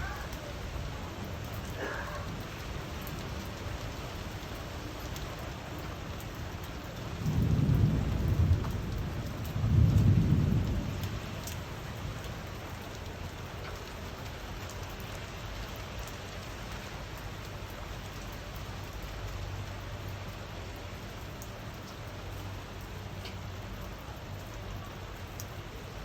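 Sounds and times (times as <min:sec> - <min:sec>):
steady rain falling: 0:00.0 - 0:26.0
low rumbles of thunder: 0:05.6 - 0:13.4.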